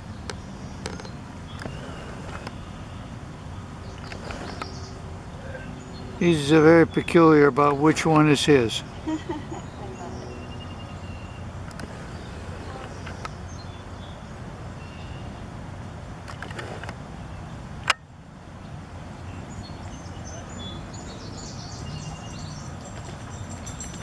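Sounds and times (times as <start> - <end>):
low background noise: 0.0 - 24.0
bird chirps: 19.3 - 24.0.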